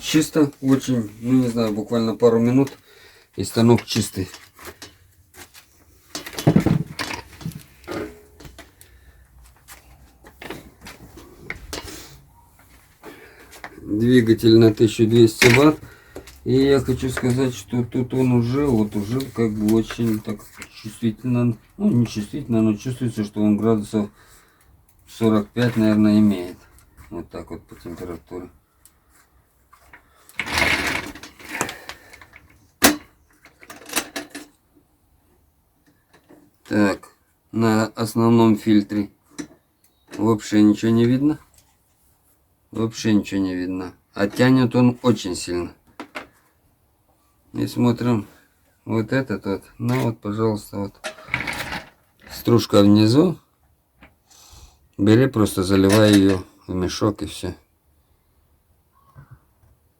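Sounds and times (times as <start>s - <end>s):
metal vacuum knocks and scraping: 6.2s - 8.3s
rough scraping rustle: 29.0s - 32.1s.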